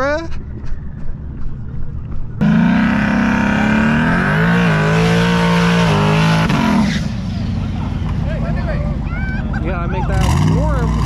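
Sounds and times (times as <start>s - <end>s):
car engine at high revs: 2.4s - 8.6s, 9.9s - 11.0s.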